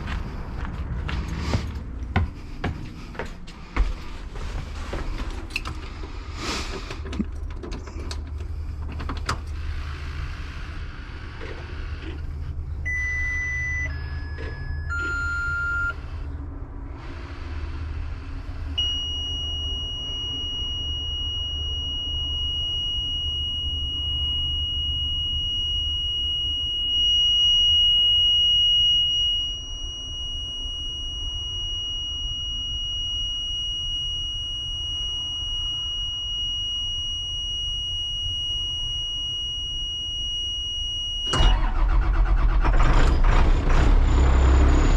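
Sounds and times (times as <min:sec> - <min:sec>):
diesel engine idling: 0:00.0 - 0:05.0, 0:41.3 - 0:44.9
high-pitched warning tone: 0:12.9 - 0:16.0, 0:18.8 - 0:42.0
short electronic beeps: 0:12.9 - 0:16.0, 0:18.8 - 0:42.8.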